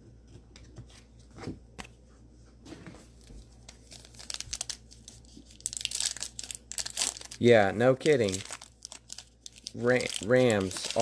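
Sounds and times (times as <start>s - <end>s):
plastic wrapper crinkling and tearing: 3.6s - 11.0s.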